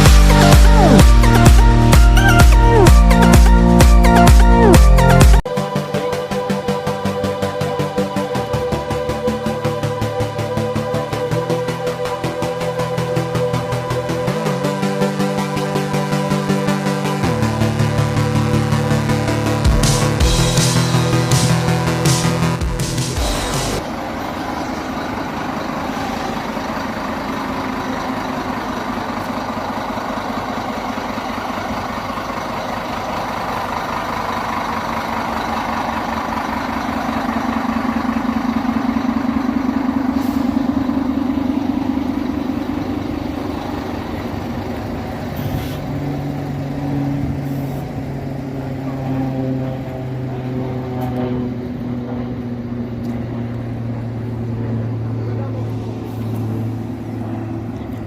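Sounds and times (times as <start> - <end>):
bus engine running: 0.0 - 58.0.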